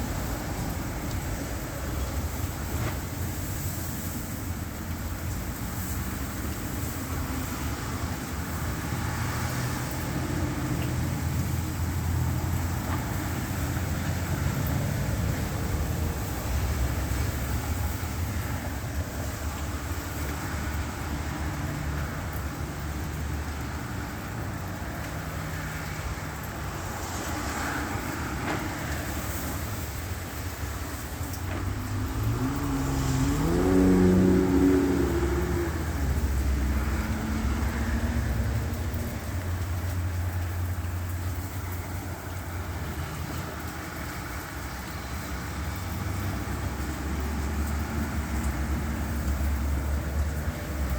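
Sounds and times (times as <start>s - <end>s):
road traffic rumble: 0.0s - 50.9s
engine revving: 31.7s - 38.9s.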